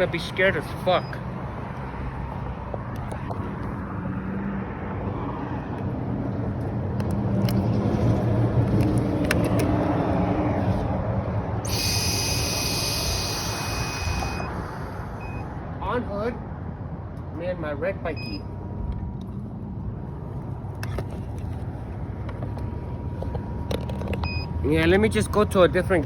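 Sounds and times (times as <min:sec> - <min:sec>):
vehicle engine running: 0:11.6 - 0:15.4
high whine: 0:11.6 - 0:15.6.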